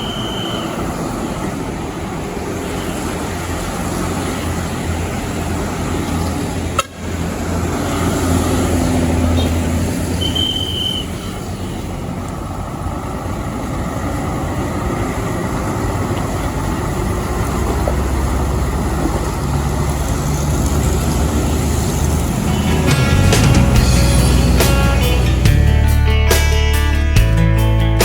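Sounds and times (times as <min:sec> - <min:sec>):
high beep: 0:00.0 - 0:00.8
truck engine running: 0:00.0 - 0:26.5
road noise: 0:00.0 - 0:27.0.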